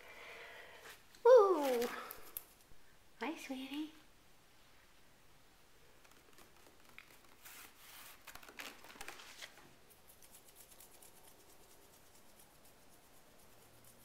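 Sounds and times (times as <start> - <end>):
rustling and crinkling: 0.8 - 2.7, 5.9 - 10.4.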